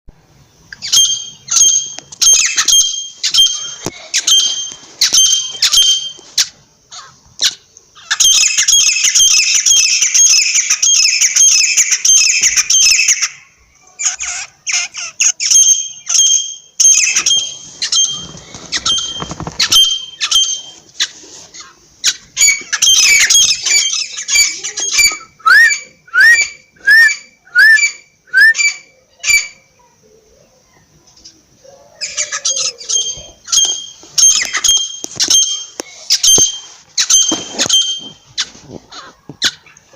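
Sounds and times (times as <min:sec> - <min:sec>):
francolin calling: 0:00.7 - 0:07.2, 0:14.5 - 0:20.8, 0:31.9 - 0:38.6.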